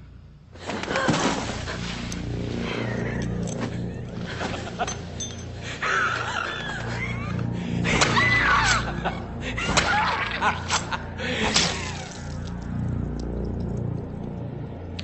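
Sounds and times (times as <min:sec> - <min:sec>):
low droning film score: 0:00.0 - 0:15.0
person laughing loudly: 0:08.6 - 0:11.5.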